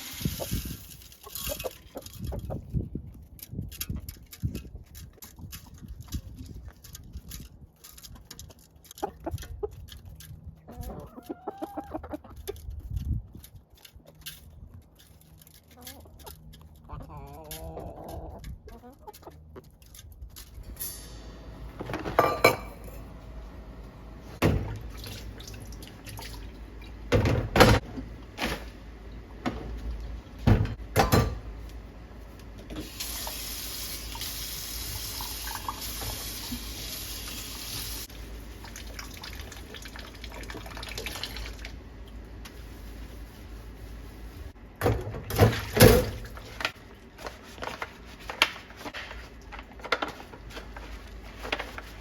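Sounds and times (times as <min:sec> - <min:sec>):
tap water running into sink: 0:34.0 - 0:37.9.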